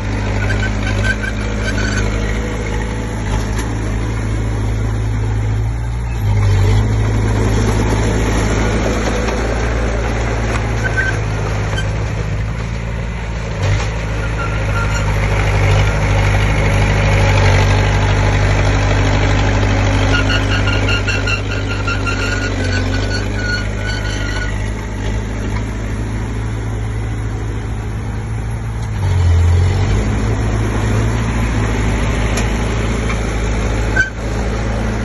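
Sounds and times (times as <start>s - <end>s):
bulldozer diesel engine running: 0.0s - 35.0s.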